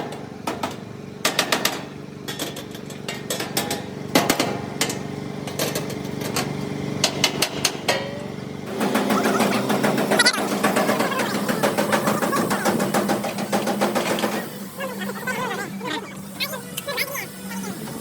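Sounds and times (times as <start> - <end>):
machine hum: 4.0 - 18.0.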